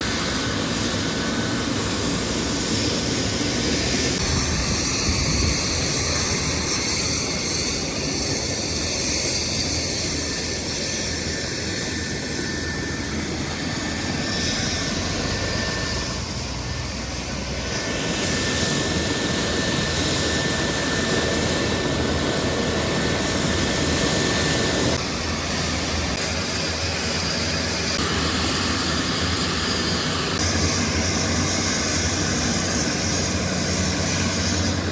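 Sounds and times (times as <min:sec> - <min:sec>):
helicopter engine and rotor: 0:00.0 - 0:34.9.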